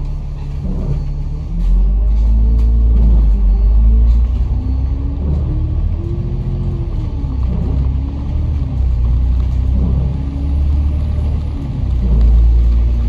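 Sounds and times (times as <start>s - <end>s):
bus engine accelerating: 0.0s - 13.0s.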